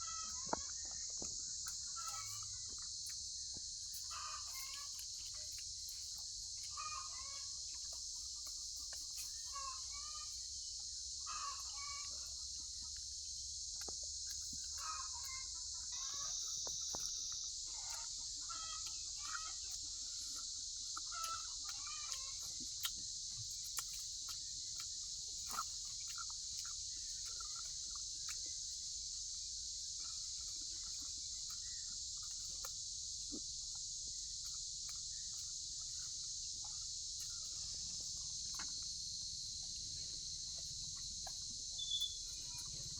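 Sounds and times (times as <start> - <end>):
chickens clucking: 0.0 - 3.2, 3.9 - 13.2, 14.2 - 29.0
insects droning: 0.0 - 42.9.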